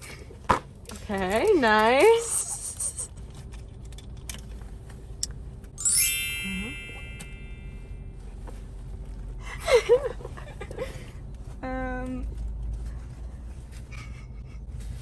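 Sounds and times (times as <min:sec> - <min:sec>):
short squeaky sounds: 0:02.2 - 0:03.1
bright chime: 0:05.8 - 0:08.0.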